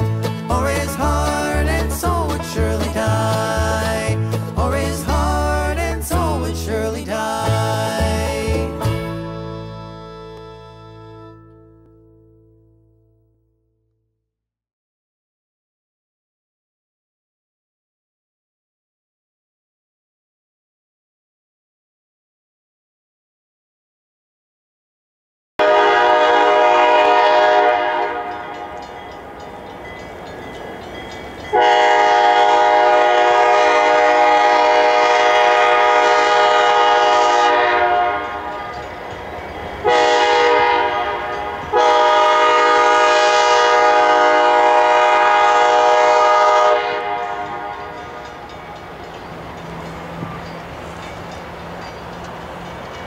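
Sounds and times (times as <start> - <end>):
train rumble: 0.0 - 10.0, 25.6 - 53.0
locomotive air horn blasts: 9.3 - 11.5, 25.6 - 28.9, 31.5 - 39.0, 39.8 - 48.5.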